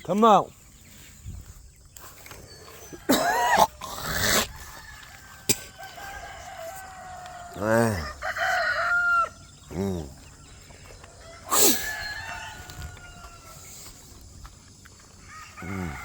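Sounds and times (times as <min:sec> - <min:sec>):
roosters crowing: 0:02.3 - 0:14.3, 0:14.9 - 0:16.0
chickens squawking: 0:02.6 - 0:14.2.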